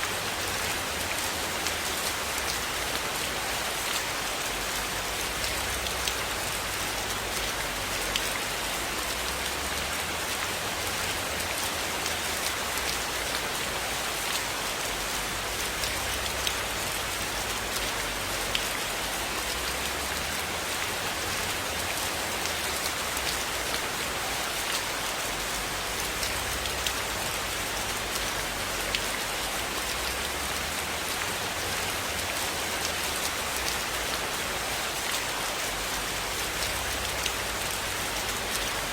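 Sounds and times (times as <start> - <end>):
steady rain hiss: 0.0 - 38.9
raindrop ticks and taps: 15.7 - 16.7, 26.0 - 27.1, 36.4 - 37.8.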